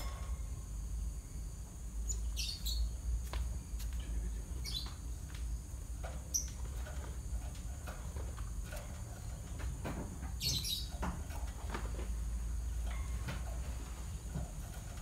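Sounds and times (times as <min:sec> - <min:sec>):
steady low hum: 0:00.0 - 0:15.0
sparrow chirping: 0:02.0 - 0:03.0, 0:04.6 - 0:05.1, 0:06.3 - 0:06.6, 0:10.4 - 0:11.1.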